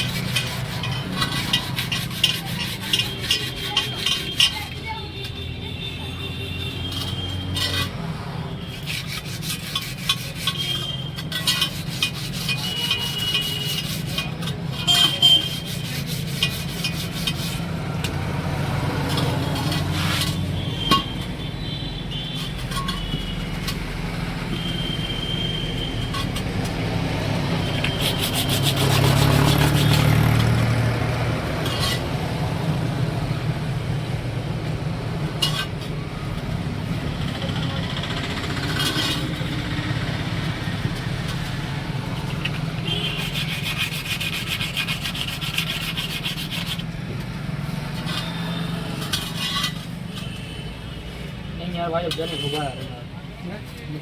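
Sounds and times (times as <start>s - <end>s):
tyre rubber scraping on rim: 0.0s - 34.1s, 35.2s - 50.6s
vehicle passing: 17.0s - 20.5s, 26.1s - 35.4s, 36.1s - 49.4s.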